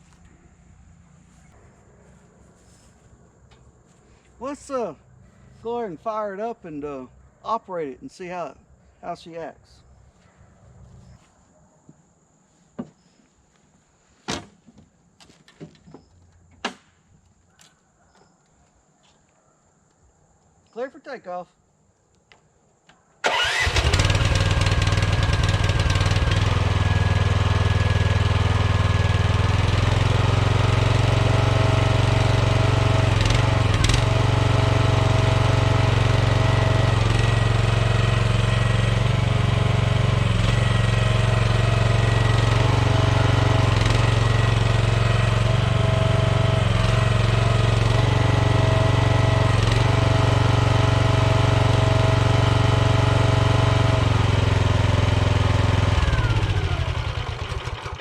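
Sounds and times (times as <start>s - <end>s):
excavator engine running: 23.2s - 58.0s.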